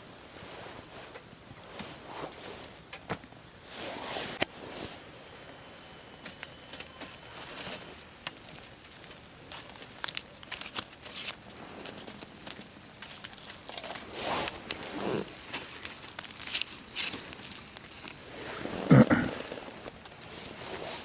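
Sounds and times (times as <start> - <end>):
foil crinkling: 7.4 - 14.1, 14.9 - 18.7.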